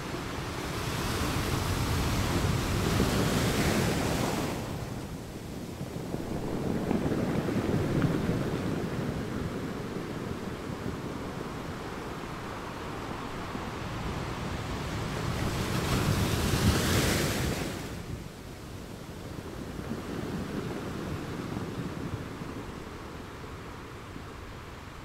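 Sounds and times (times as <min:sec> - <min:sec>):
surf breaking on sandy beach: 0:00.3 - 0:18.2.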